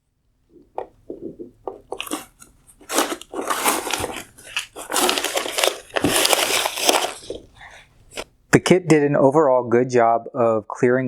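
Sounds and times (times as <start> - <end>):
tape peeling and crinkling: 1.8 - 8.3.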